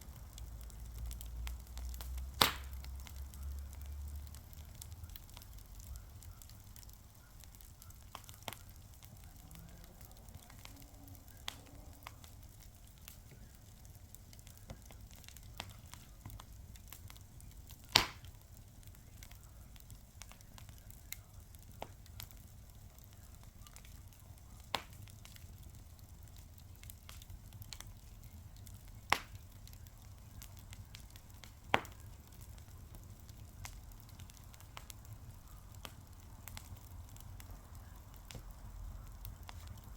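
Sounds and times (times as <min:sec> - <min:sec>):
fire crackling: 0:00.0 - 0:39.9
sharp pops: 0:01.8 - 0:03.2, 0:17.9 - 0:18.3.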